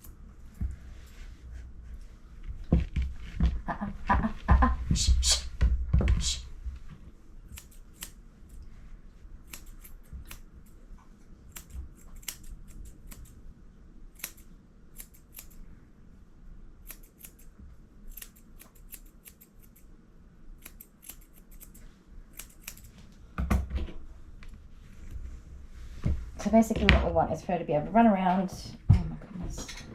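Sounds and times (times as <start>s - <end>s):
grooming scissors snipping: 7.5s - 8.7s, 9.4s - 10.8s, 11.5s - 13.4s, 14.1s - 15.6s, 16.8s - 19.9s, 20.6s - 23.0s.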